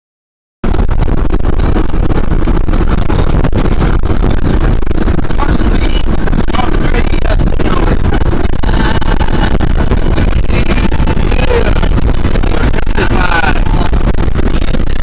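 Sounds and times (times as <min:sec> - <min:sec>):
garbage truck engine rumbling: 0:00.6 - 0:15.0.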